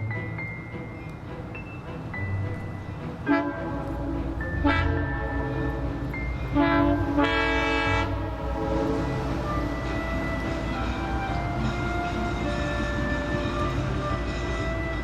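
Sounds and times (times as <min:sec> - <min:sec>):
locomotive low rumble: 0:00.0 - 0:15.0
model locomotive horn blasts: 0:06.6 - 0:15.0.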